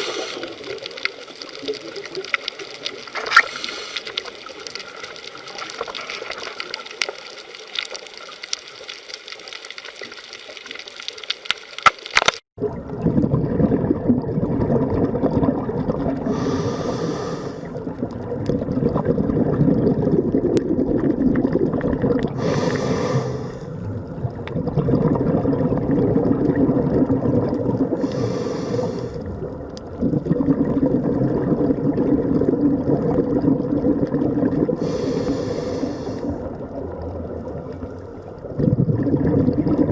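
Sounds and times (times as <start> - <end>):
water rushing: 0.0 - 12.4
underwater bubbling: 0.0 - 39.9.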